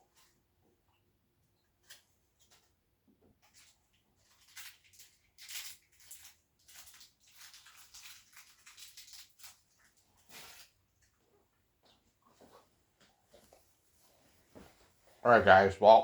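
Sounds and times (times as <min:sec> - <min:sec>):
faint rustling and scraping: 0:01.5 - 0:15.6.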